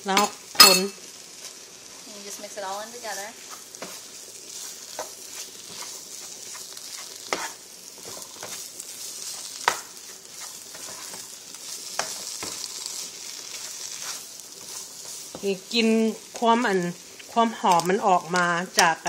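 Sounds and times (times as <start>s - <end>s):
curry paste sizzling in oil: 0.0s - 19.0s
spatula tapping pan: 4.9s - 8.6s, 9.4s - 15.6s.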